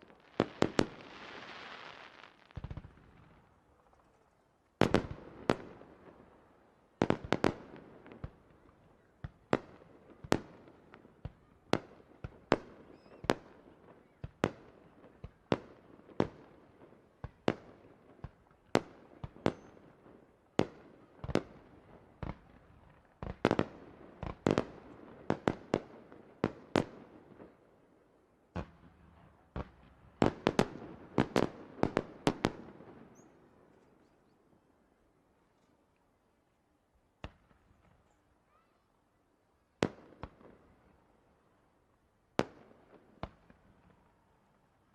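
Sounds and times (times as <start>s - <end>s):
fireworks bursting with sharp bangs: 0.0s - 3.9s, 4.8s - 6.3s, 7.0s - 27.6s, 28.5s - 33.8s, 37.2s - 38.2s, 39.8s - 40.9s, 42.4s - 44.3s.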